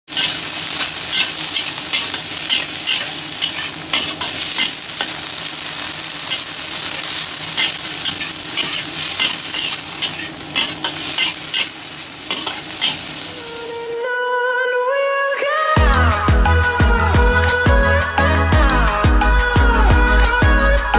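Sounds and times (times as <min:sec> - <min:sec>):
vegetables sizzling in a wok: 0:00.0 - 0:14.1.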